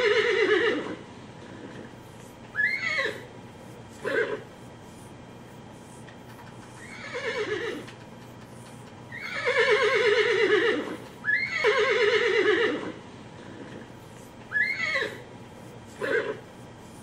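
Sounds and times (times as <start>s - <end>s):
horse whinnying through speaker: 6.8s - 7.8s, 9.1s - 13.0s, 14.5s - 15.2s.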